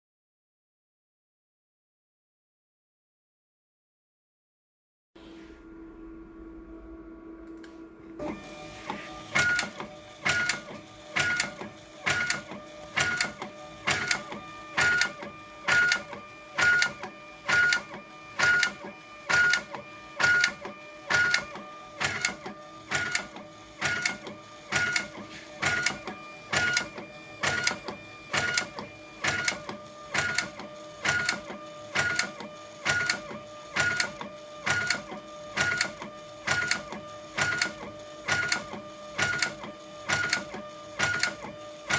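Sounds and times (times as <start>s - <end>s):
steady hum: 5.2s - 10.2s
brief printer tone: 8.1s - 41.9s
label printer mechanical bursts: 8.2s - 41.9s.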